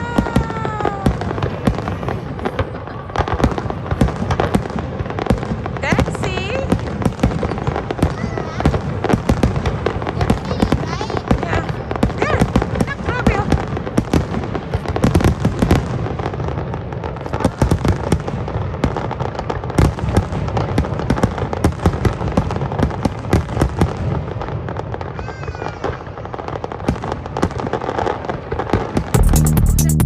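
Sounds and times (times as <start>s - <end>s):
fireworks bangs and crackling: 0.0s - 30.0s
electronic dance music: 29.2s - 30.0s.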